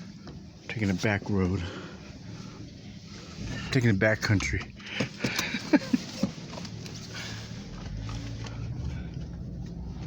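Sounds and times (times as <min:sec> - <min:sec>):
car driving rumble from inside: 0:03.1 - 0:10.0.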